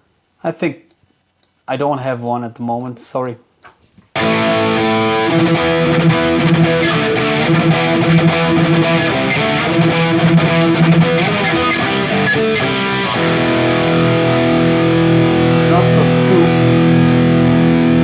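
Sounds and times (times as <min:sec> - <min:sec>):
distorted electric guitar riff: 0:04.2 - 0:18.0.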